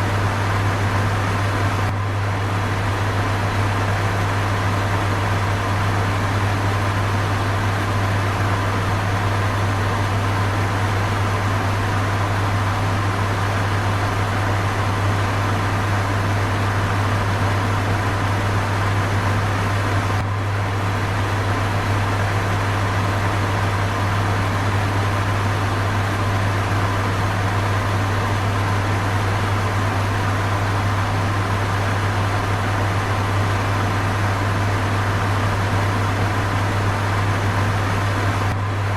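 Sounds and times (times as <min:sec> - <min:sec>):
electric fan running: 0:00.0 - 0:38.9.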